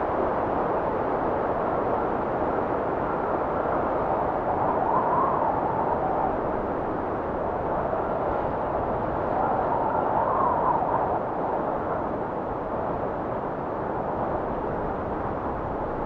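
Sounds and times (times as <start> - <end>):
strong blizzard wind rushing: 0.0 - 16.0
whistling wind gust: 0.0 - 16.0.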